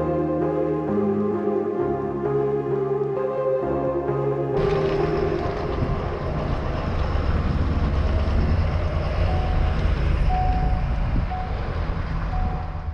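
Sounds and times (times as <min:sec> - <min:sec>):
wind buffeting microphone: 0:04.6 - 0:12.9.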